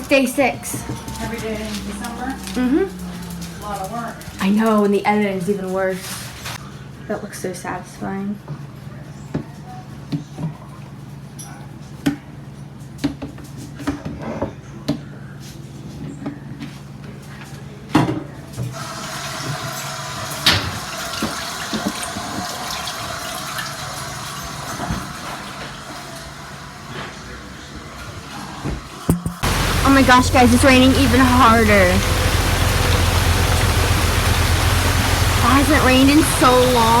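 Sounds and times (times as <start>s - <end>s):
rain falling: 0.0s - 6.6s, 29.4s - 37.0s
running water: 0.0s - 6.6s, 18.8s - 25.4s, 29.4s - 37.0s
drips tapping: 29.3s - 37.0s.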